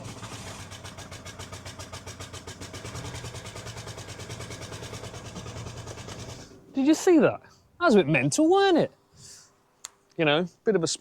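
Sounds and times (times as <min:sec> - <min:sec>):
diesel engine idling with puffing: 0:00.0 - 0:06.6.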